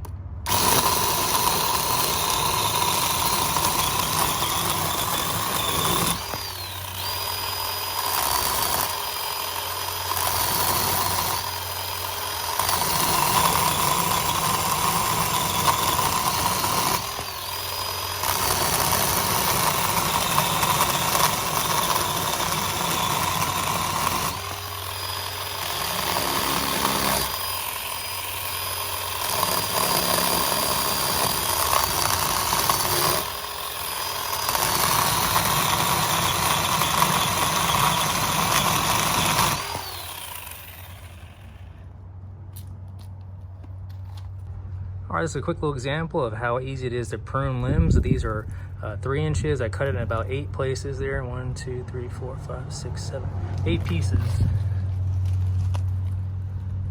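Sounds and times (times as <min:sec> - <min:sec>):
electric chainsaw motor whine: 0:00.4 - 0:41.9
chain cutting wood: 0:00.5 - 0:41.6.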